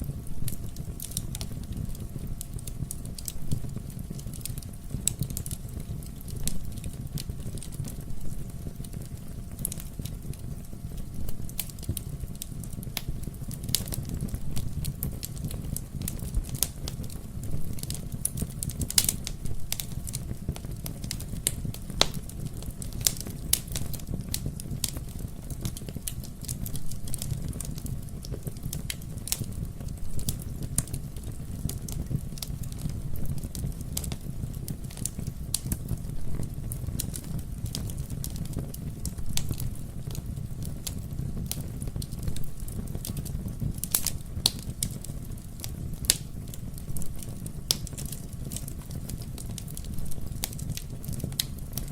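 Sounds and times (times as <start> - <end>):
low rumble of fire flames: 0.0 - 51.9
logs crackling and popping: 0.1 - 51.9.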